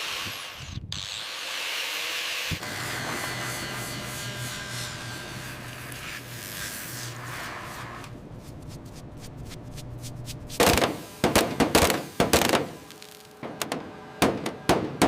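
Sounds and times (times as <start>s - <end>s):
power tool whirring: 0.0s - 8.1s.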